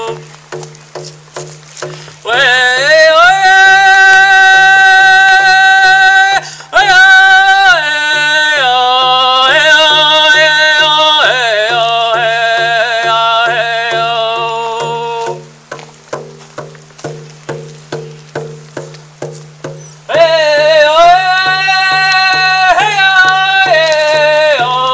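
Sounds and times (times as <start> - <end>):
man chanting: 0.0 - 0.3, 2.2 - 15.6, 20.1 - 24.9
steady drum beat: 0.0 - 5.0, 6.8 - 24.9.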